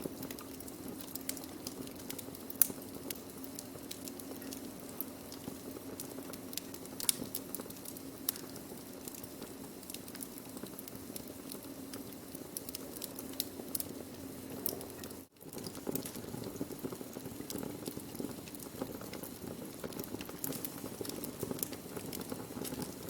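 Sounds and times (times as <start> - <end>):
burning wood crackling: 0.0 - 23.0.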